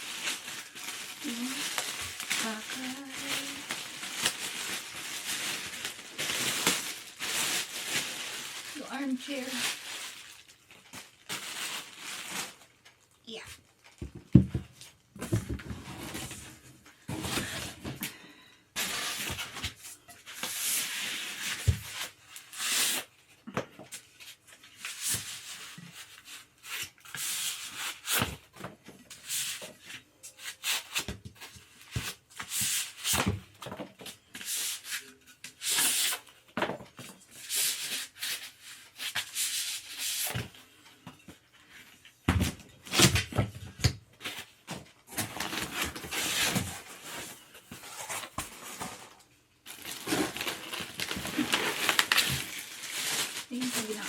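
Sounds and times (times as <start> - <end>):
packaging rustling: 0.0 - 14.0, 44.2 - 54.0.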